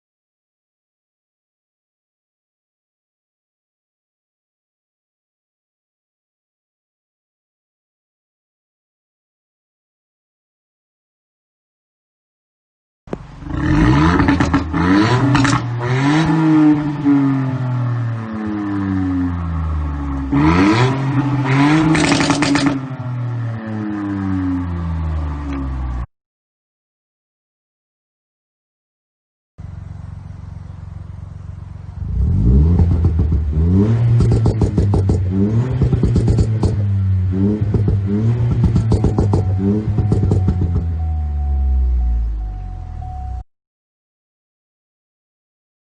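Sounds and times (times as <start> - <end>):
exhaust crackling: 13.1 - 25.9, 29.6 - 43.4
car engine revving: 13.1 - 26.1, 29.6 - 43.4.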